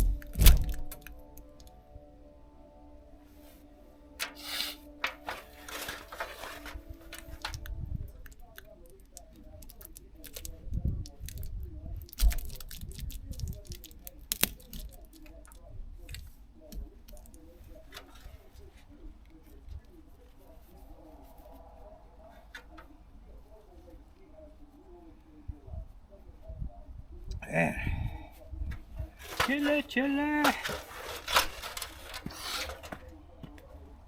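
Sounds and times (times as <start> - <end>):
clicks and rustling of pipe parts: 0.0 - 1.7, 4.2 - 10.6, 12.1 - 18.9, 28.7 - 33.6.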